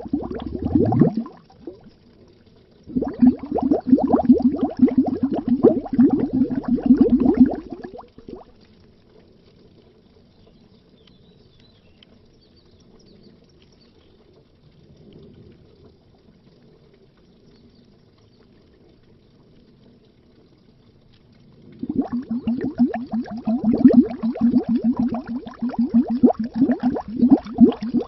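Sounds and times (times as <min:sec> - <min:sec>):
underwater bubbling: 0:00.0 - 0:10.0, 0:17.9 - 0:28.0
small pops and ticks: 0:00.1 - 0:28.0.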